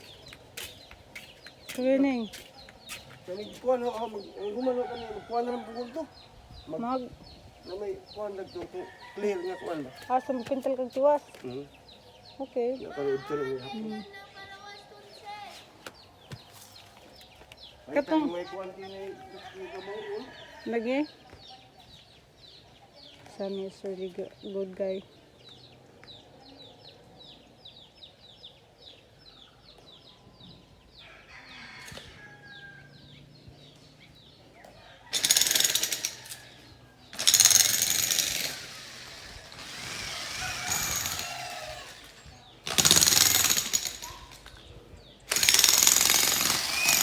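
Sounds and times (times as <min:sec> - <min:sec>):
jackhammer breaking ground: 0:35.1 - 0:36.2, 0:37.2 - 0:44.4, 0:45.3 - 0:47.0.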